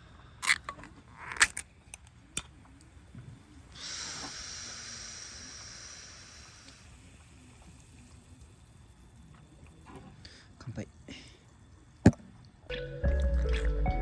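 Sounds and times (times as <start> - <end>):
carbonated drink fizzing: 0.4 - 10.9.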